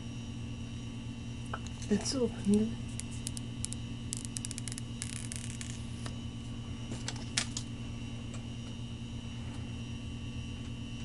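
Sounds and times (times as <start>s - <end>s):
low electrical hum: 0.0s - 11.0s
cardboard packaging crackling: 2.8s - 6.1s.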